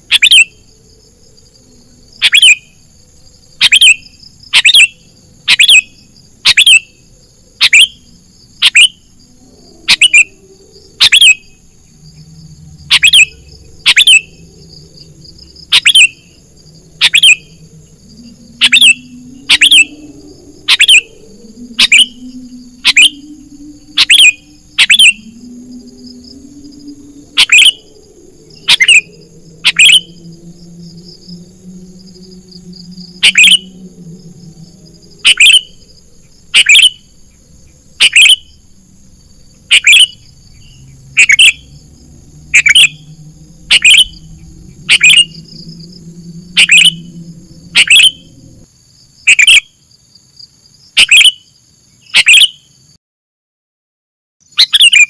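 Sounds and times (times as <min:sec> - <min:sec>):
bird call sweeping downward: 0:12.9 - 0:14.7, 0:16.9 - 0:35.9, 0:36.6 - 0:37.0, 0:39.7 - 0:48.6, 0:52.2 - 0:52.6.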